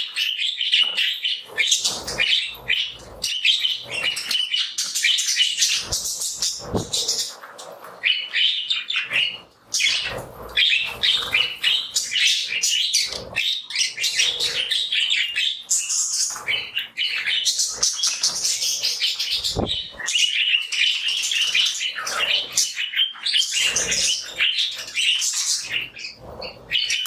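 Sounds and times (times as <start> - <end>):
budgerigars chirping and warbling: 0.0 - 27.0
brief thump: 6.6 - 7.0.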